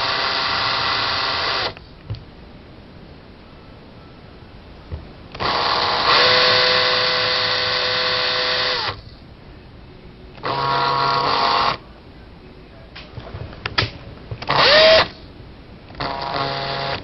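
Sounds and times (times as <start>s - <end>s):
cordless drill motor whining: 0.0s - 1.8s, 5.3s - 9.0s, 10.4s - 11.8s, 14.4s - 15.2s, 15.9s - 17.0s.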